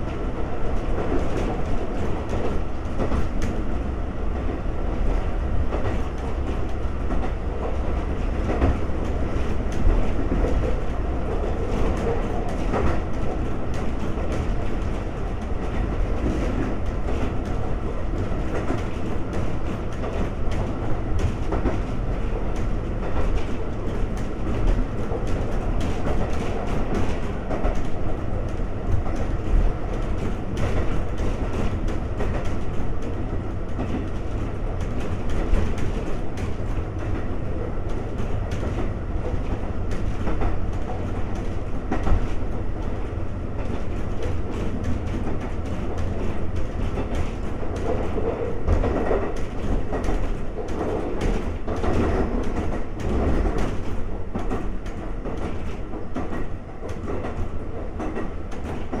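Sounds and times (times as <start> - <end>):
train wheels rumbling on rail: 0.0 - 59.0
clicks over rail joints: 37.9 - 59.0.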